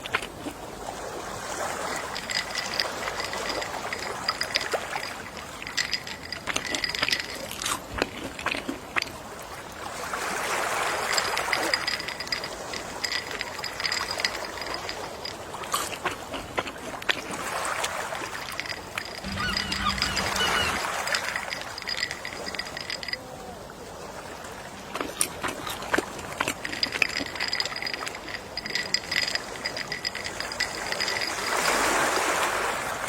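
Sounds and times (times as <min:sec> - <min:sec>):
sea waves washing ashore: 0:00.0 - 0:33.0.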